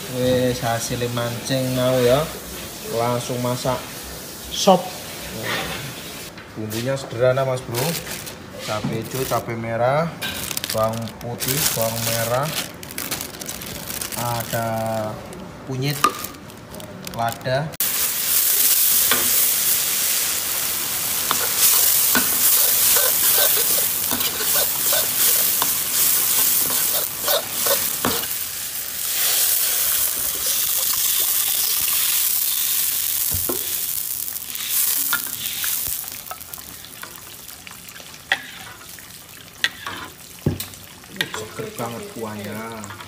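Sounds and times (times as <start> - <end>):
paste sizzling in hot oil: 10.2 - 15.2, 17.8 - 43.0.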